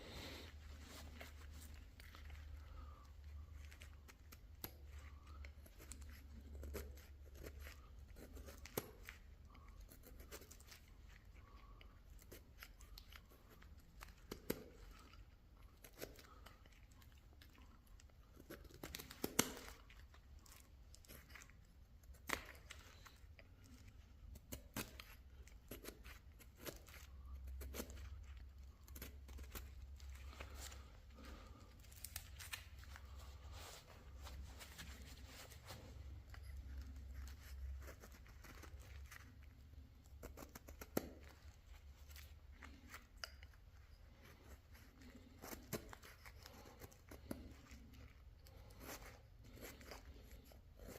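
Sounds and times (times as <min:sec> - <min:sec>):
shavings snapping: 0:02.7 - 0:33.1.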